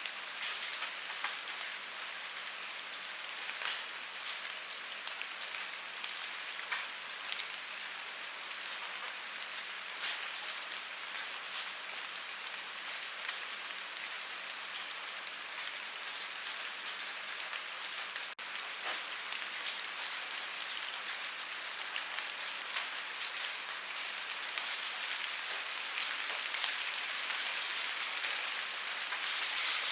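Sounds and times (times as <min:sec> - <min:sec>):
steady rain falling: 0:00.0 - 0:29.9
raindrops ticking: 0:08.3 - 0:29.9.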